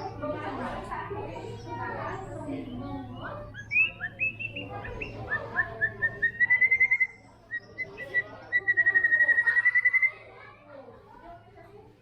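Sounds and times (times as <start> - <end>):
bird singing whistles and trills: 2.2 - 10.2.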